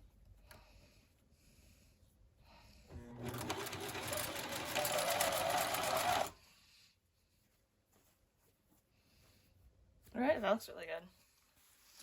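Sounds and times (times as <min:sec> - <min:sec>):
sewing machine clattering: 0:03.2 - 0:06.4.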